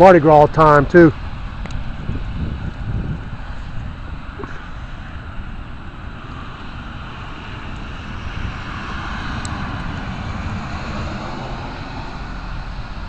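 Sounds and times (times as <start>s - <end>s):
vehicle rushing noise: 0.0s - 13.0s
low rumble: 0.6s - 13.0s.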